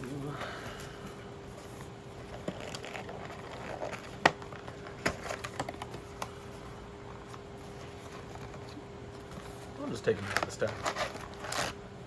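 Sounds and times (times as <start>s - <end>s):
card packs clicking and tapping: 2.3s - 6.4s, 9.8s - 11.7s.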